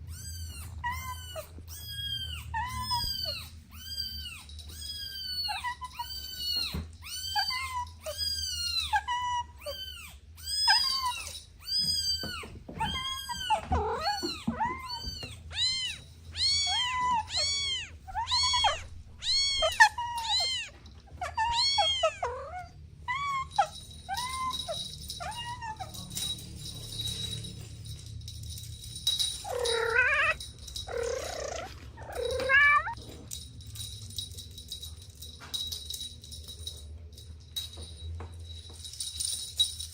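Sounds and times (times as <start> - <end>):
kittens meowing: 0.0 - 26.4, 29.4 - 33.0.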